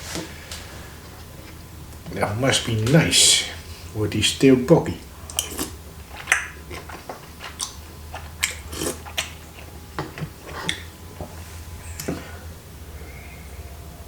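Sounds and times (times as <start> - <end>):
person chewing with mouth clicks: 5.1 - 12.2.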